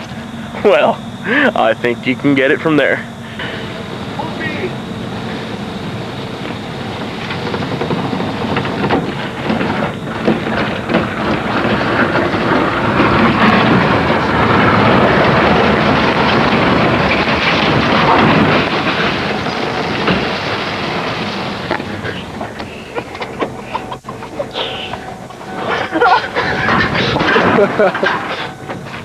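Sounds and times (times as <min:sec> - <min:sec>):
scattered knocks: 0:05.8 - 0:29.0.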